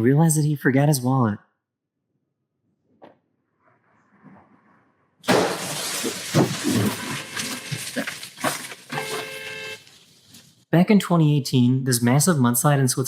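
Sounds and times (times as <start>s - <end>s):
loud crash: 5.2s - 9.1s
breaking and clattering: 5.3s - 9.4s.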